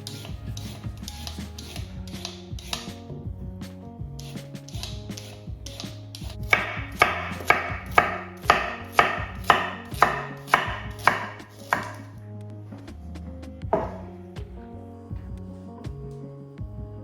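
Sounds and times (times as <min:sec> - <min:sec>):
knife chopping on cutting board: 0:04.8 - 0:12.1, 0:13.8 - 0:14.1.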